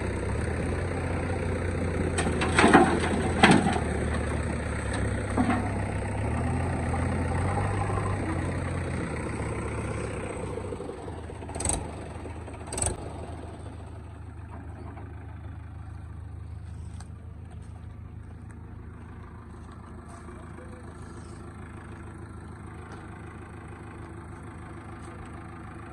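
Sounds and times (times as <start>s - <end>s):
heavy machinery diesel engine: 0.0s - 25.9s.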